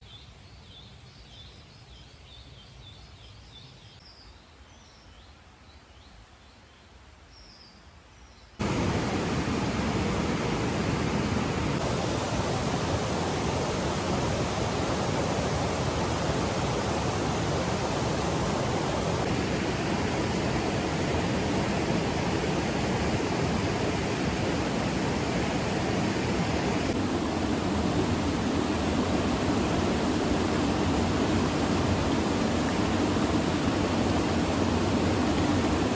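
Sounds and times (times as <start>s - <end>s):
water rushing: 8.6s - 35.9s.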